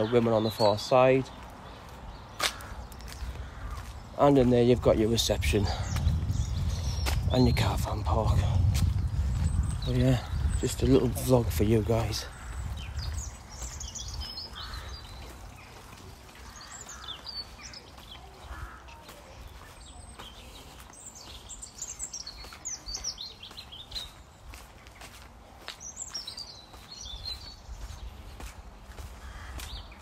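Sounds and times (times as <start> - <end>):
faint footsteps: 0.0 - 30.0
songbirds chirping and singing: 0.0 - 30.0.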